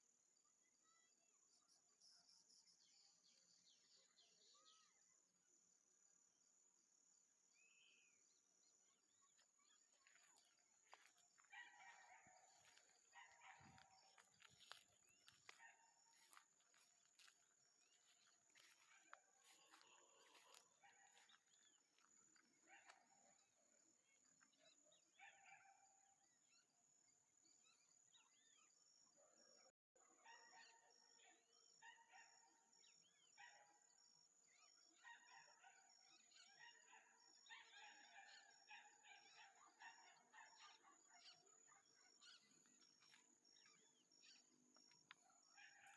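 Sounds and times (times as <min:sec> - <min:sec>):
birds calling and chirping: 0:09.3 - 0:23.2.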